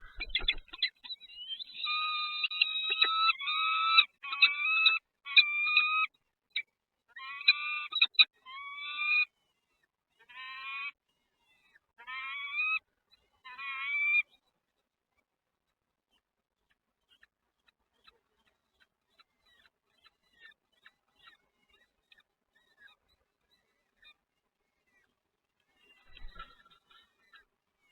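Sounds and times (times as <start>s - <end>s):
nestling birds begging calls: 0.0s - 4.8s, 26.1s - 26.7s.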